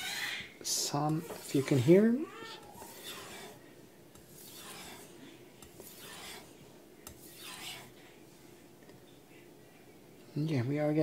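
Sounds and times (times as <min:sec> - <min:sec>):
knife stroked on wet whetstone: 0:01.3 - 0:02.1, 0:02.8 - 0:03.6, 0:04.2 - 0:05.1, 0:05.8 - 0:06.5, 0:07.1 - 0:07.9.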